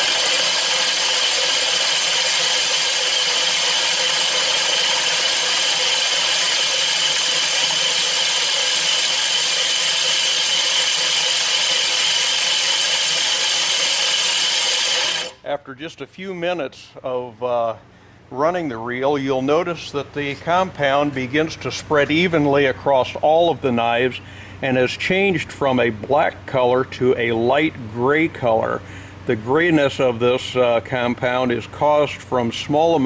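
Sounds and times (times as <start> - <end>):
reel mower blades grinding: 0.0 - 15.4.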